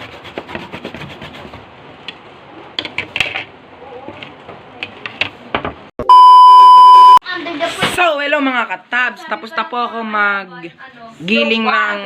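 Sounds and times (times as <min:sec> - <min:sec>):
loud electronic beep: 0:06.0 - 0:07.2.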